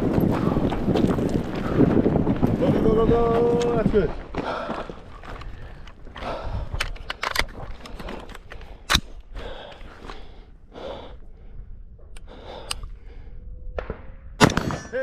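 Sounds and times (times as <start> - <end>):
footsteps and movement: 0.0 - 13.1
gunshot cracks: 14.4 - 15.0.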